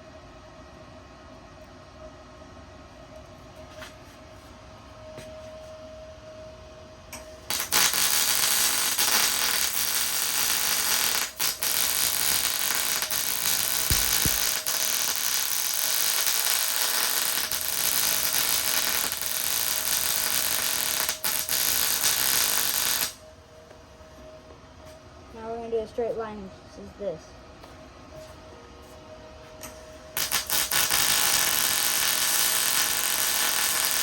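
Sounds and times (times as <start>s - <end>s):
welding arc crackling: 7.4s - 23.2s, 30.2s - 34.0s.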